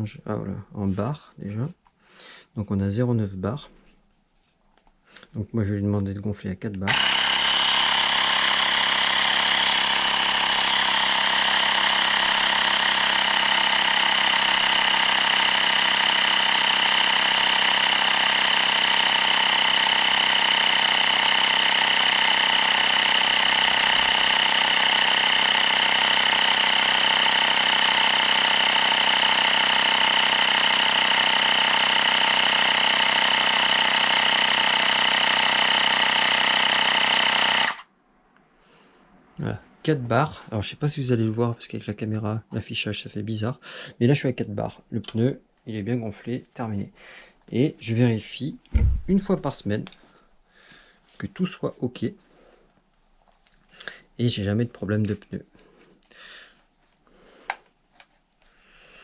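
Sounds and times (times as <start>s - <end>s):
electric tyre pump buzzing: 6.9s - 37.9s.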